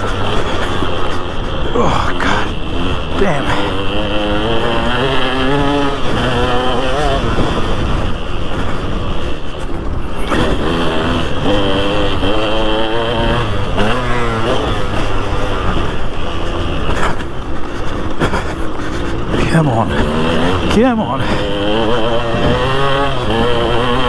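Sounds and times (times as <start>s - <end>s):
motocross engine revving: 0.0s - 24.0s.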